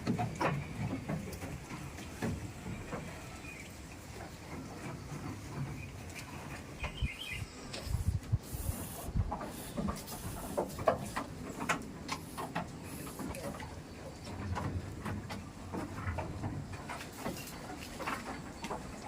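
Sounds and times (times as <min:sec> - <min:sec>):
bird chirp: 0:06.7 - 0:07.7.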